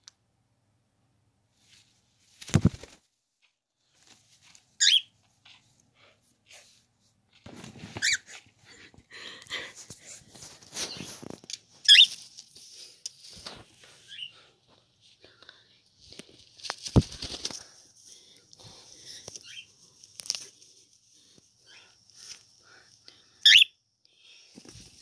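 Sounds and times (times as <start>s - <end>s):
cockatiel calling: 4.8s - 5.1s, 11.9s - 12.1s, 23.4s - 23.7s.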